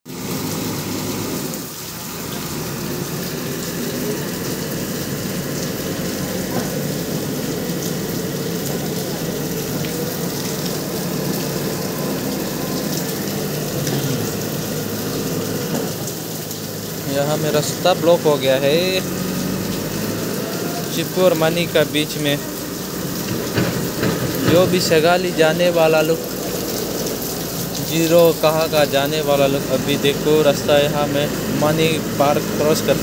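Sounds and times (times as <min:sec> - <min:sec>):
heavy rain: 0:00.1 - 0:33.0
diesel engine running: 0:00.2 - 0:16.1.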